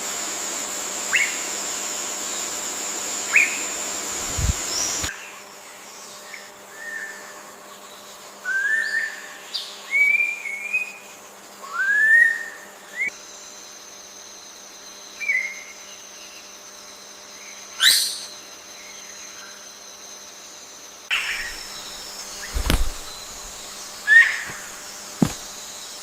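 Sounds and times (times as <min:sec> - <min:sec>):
sharp sweeping bird call: 0:21.1 - 0:25.4.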